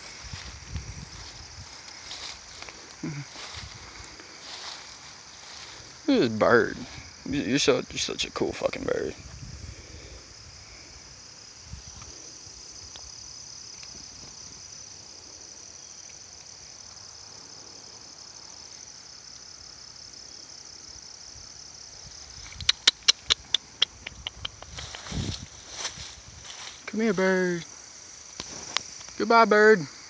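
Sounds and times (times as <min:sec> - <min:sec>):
crickets chirping: 0:00.0 - 0:30.0
sharp high clicks: 0:22.4 - 0:25.1.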